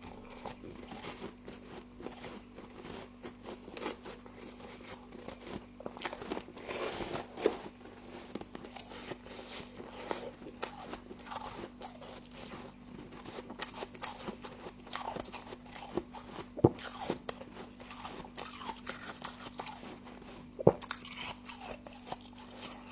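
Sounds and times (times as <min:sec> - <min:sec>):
chewing crunchy frost: 0:00.0 - 0:22.9.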